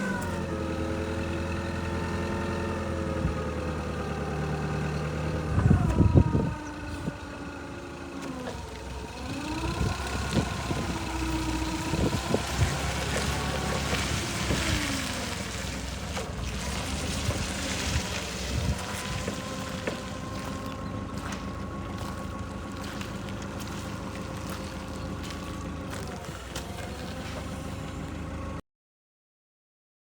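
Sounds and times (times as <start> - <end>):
forklift engine running: 0.0 - 28.6
wind noise on microphone: 5.4 - 7.3, 9.3 - 15.1, 17.0 - 19.8.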